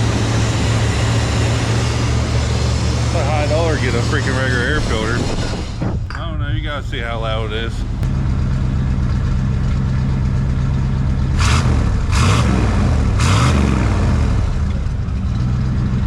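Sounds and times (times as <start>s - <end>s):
engine revving blips: 0.0s - 6.0s, 11.3s - 16.0s
truck engine idling: 0.0s - 13.3s, 14.0s - 16.0s.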